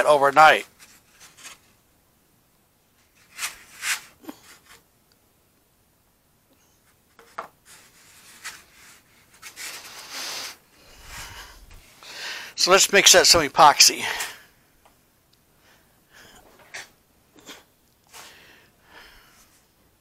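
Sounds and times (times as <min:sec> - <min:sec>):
rubbing and scraping on workbench: 0:07.2 - 0:11.8.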